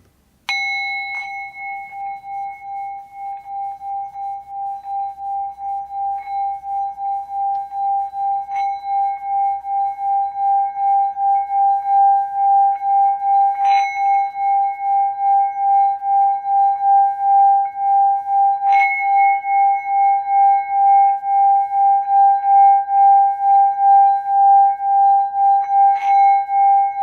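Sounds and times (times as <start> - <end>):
sharp touches on singing bowl: 0.0 - 10.2
singing bowl ringing tone: 0.4 - 27.0.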